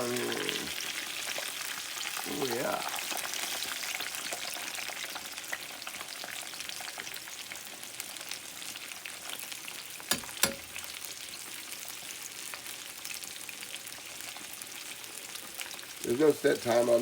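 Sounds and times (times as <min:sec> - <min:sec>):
chicken frying in oil: 0:00.0 - 0:17.0.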